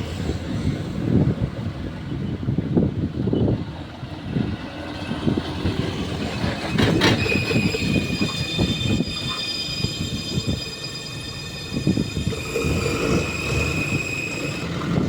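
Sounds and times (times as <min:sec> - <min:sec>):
high-pitched squeal: 0:05.9 - 0:15.0.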